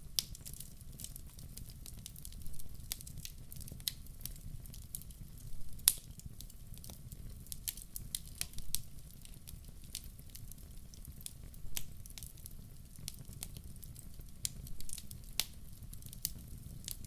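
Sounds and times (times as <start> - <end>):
low rumble of flames: 0.0 - 17.0
logs crackling and popping: 0.1 - 17.0.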